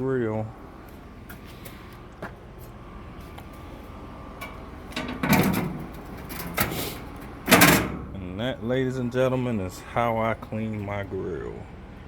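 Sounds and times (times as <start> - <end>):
grill grates scraping clatter: 4.4 - 8.3
metal grill grates clicking: 4.4 - 8.3.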